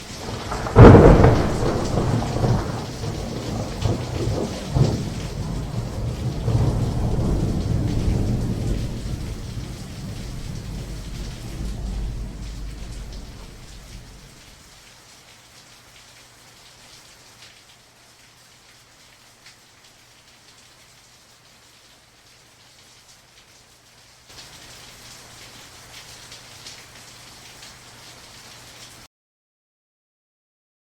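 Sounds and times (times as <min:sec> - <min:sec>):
steady rain: 0:00.0 - 0:29.1
rolling thunder: 0:00.1 - 0:14.6.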